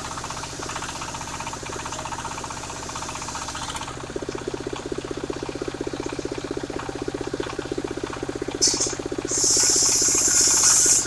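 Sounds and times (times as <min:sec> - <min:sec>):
sawmill engine pulsing: 0:00.0 - 0:11.0
high hiss: 0:09.3 - 0:11.0.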